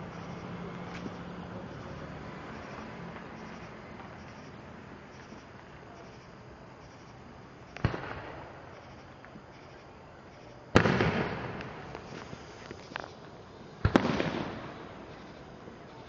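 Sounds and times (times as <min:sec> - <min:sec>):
firework crackles: 0:07.7 - 0:09.9, 0:10.5 - 0:16.0
firework booms: 0:07.8 - 0:08.7, 0:10.8 - 0:12.0, 0:13.8 - 0:15.0.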